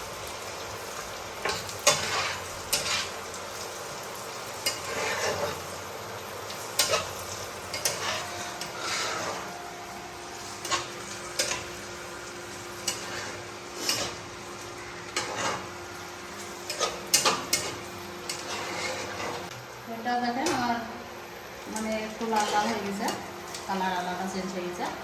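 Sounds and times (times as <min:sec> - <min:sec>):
vegetables sizzling in oil: 0:00.0 - 0:25.0
utensil scraping a pan: 0:04.6 - 0:05.7, 0:06.8 - 0:09.6, 0:12.8 - 0:14.3, 0:15.1 - 0:15.7, 0:16.4 - 0:19.5, 0:22.2 - 0:23.2.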